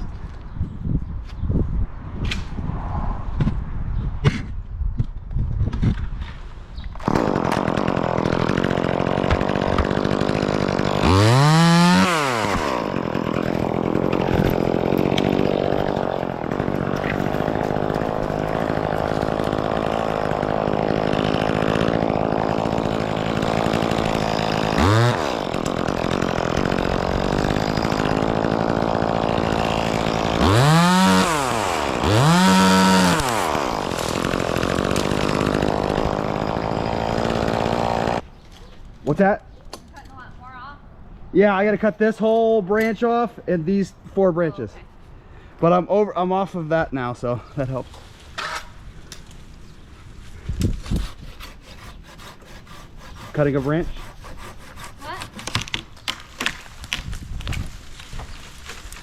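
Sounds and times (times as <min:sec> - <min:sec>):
chainsaw engine idling and revving: 0:07.0 - 0:38.2.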